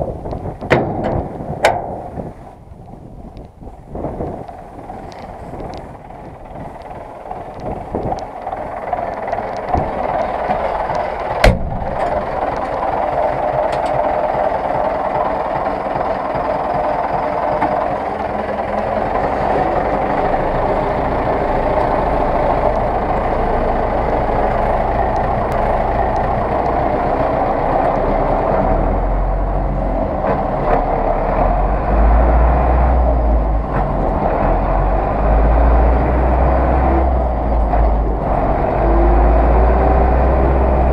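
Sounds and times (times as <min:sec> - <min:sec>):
tractor diesel engine running: 0:00.0 - 0:40.9
sharp knock: 0:11.4 - 0:11.9.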